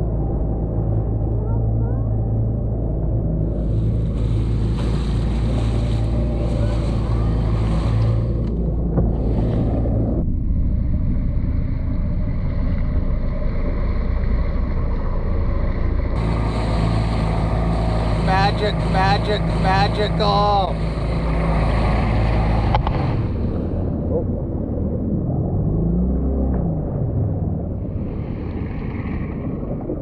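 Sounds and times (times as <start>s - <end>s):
outboard motor running: 1.7s - 28.9s
water washing: 3.5s - 10.1s, 16.2s - 23.9s.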